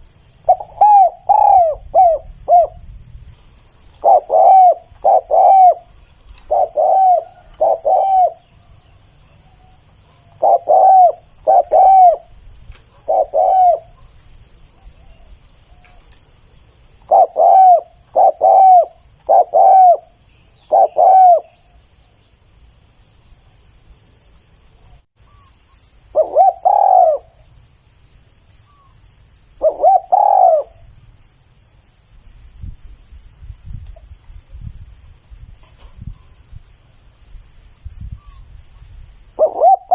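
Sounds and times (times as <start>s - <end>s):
insects trilling: 0.0s - 39.9s
dove cooing: 0.5s - 2.8s, 4.0s - 8.7s, 9.5s - 14.1s, 17.0s - 21.7s, 26.1s - 27.4s, 29.6s - 30.9s, 39.4s - 39.9s.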